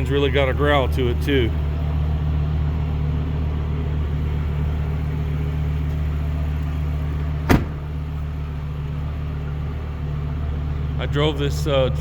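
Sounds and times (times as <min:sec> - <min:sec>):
engine idling with deep growl: 0:00.0 - 0:12.0.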